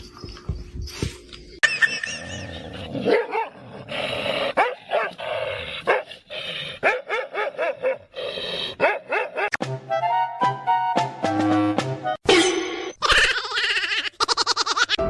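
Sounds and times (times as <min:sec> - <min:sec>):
dog barking and yipping: 0:03.0 - 0:03.6, 0:04.6 - 0:05.2, 0:06.8 - 0:08.1, 0:08.8 - 0:09.5.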